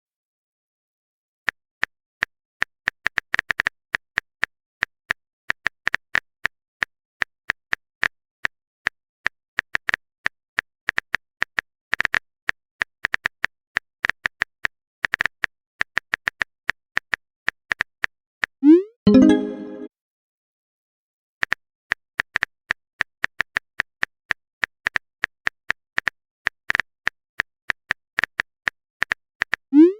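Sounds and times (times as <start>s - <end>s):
keyboard typing clicks: 19.1s - 19.9s.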